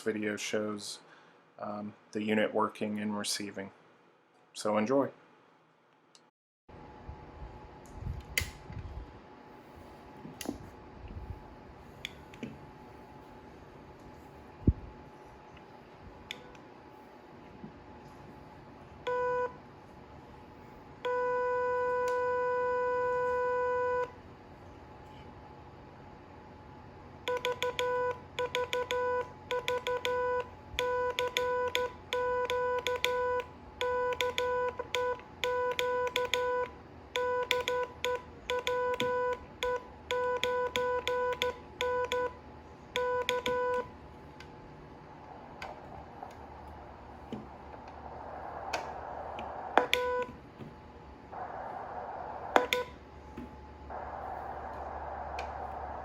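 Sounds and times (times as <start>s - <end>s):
morse code tone: 27.3s - 42.4s, 43.0s - 43.9s
radio receiver hiss: 44.2s - 56.0s
sharp clicks: 52.5s - 52.9s.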